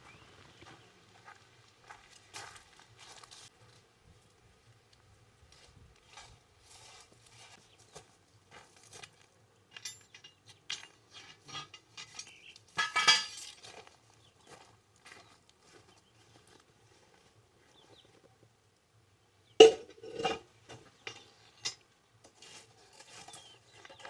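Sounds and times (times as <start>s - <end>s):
metal pots and utensils clinking: 9.7s - 13.6s, 19.6s - 21.8s.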